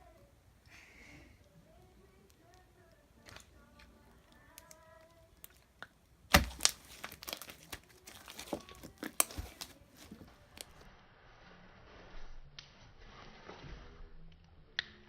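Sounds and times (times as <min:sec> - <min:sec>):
slime crackling and popping: 0:01.7 - 0:09.8.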